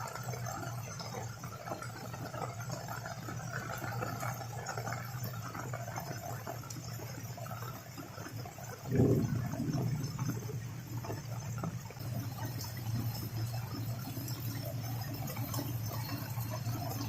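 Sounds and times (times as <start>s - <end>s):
low steady hum: 8.8s - 17.0s
heavy rain falling: 8.9s - 13.6s.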